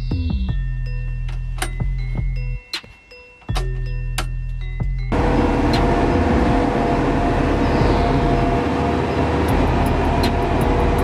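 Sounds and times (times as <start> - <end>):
road roller diesel engine running: 5.1 - 11.0.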